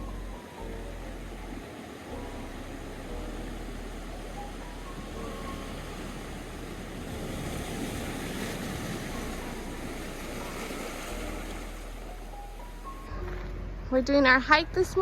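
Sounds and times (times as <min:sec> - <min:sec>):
ocean waves rushing: 0:00.0 - 0:13.1.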